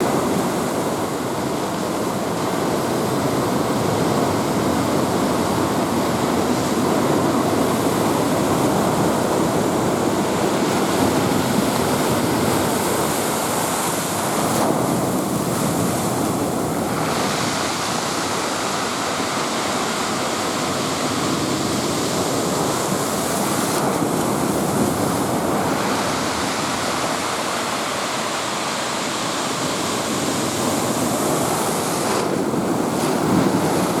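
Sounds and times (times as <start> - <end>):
heavy waves breaking: 0.0 - 34.0.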